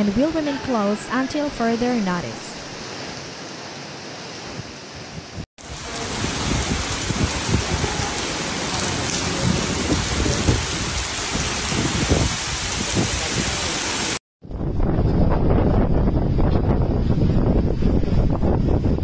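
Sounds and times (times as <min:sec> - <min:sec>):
heavy rain on a flooded street: 0:05.6 - 0:14.2.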